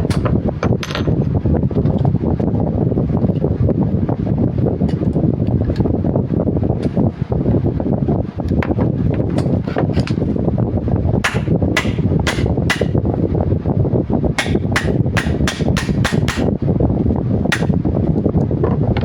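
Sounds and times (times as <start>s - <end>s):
steady low rumbling noise: 0.0s - 19.0s
sharp hammer blows: 11.2s - 13.0s.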